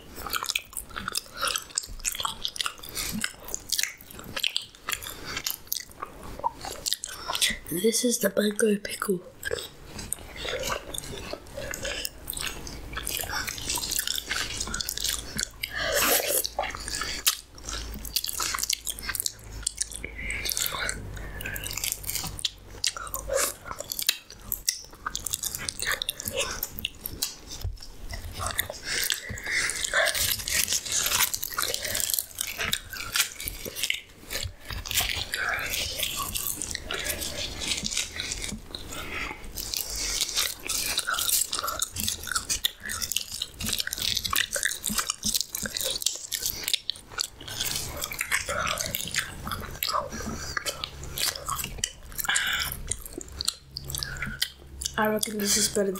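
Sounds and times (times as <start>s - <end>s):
person biting and chewing food: 0.0s - 7.8s, 9.3s - 55.9s.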